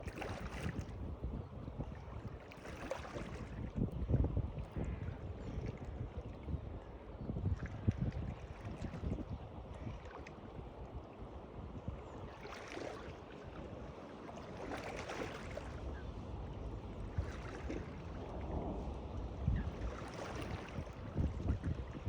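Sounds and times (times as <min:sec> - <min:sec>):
water lapping and splashing: 0:00.0 - 0:22.0
low steady rumble: 0:13.2 - 0:22.0.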